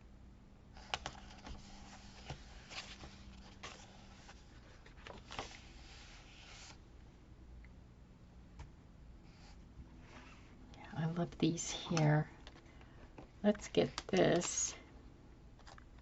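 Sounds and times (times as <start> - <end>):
paper rustling: 0.8 - 6.8.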